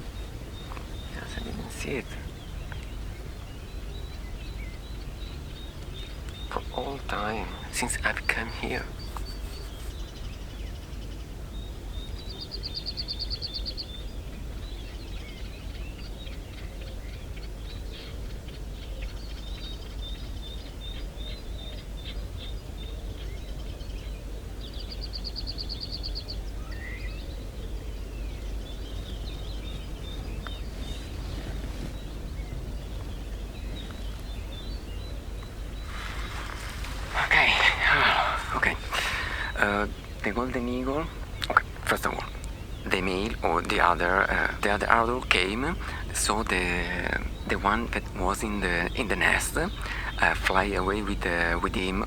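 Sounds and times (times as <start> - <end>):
low background rumble: 0.0 - 52.0
songbirds chirping: 0.0 - 52.0
fast high bird trills: 35.8 - 47.8.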